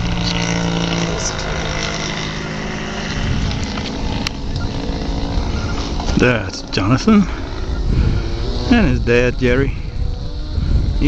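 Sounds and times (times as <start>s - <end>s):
model airplane engine in flight: 0.0s - 11.0s.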